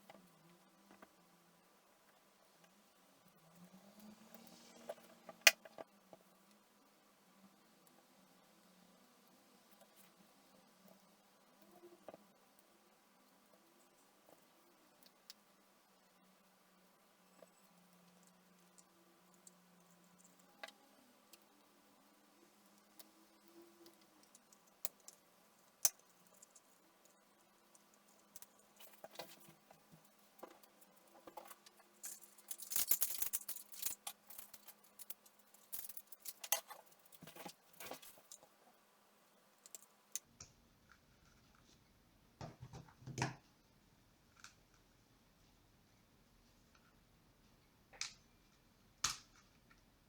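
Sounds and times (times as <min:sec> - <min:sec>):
faint steady hum: 0:00.0 - 0:50.0
small hard objects handled: 0:25.9 - 0:38.6.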